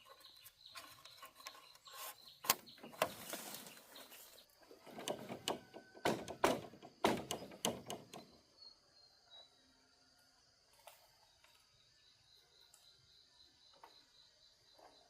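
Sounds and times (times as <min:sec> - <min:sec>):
hard wooden knocks and clatters: 0:04.8 - 0:08.3.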